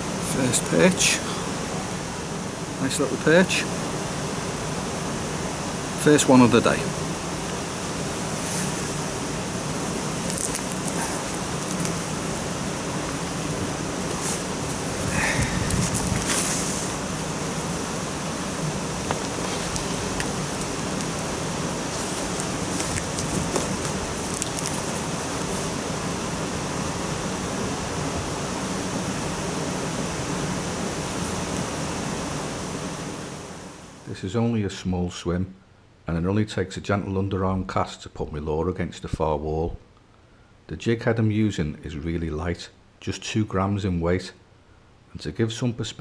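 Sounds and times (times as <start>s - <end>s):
water rushing from overflow: 0.0s - 34.0s.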